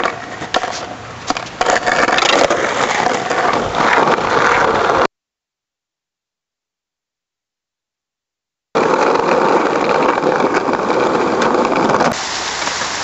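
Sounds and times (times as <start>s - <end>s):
skateboard rolling: 0.0s - 5.1s, 8.8s - 13.0s.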